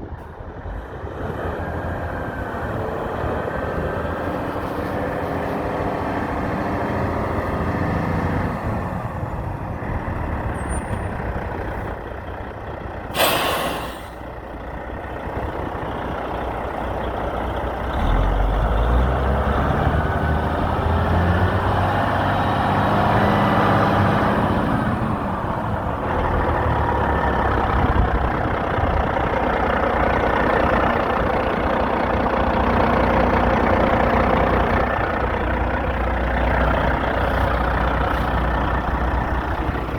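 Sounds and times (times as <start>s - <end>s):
diesel truck engine running: 0.0s - 39.9s
air brake hiss: 13.1s - 14.3s.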